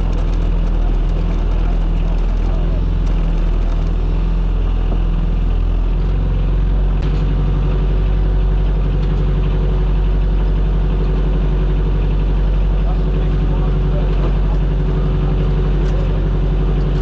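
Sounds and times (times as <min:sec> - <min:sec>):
small boat engine running: 0:00.0 - 0:17.0.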